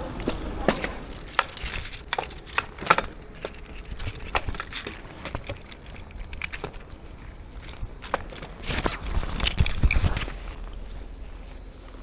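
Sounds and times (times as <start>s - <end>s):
low steady rumble: 0.0s - 12.0s
metallic clinks and jangles: 0.7s - 8.5s.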